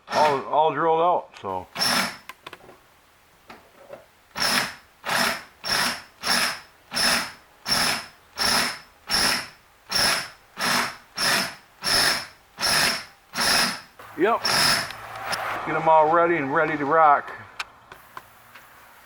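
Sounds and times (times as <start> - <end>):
power drill whining bursts: 1.8 - 2.3, 4.4 - 15.4.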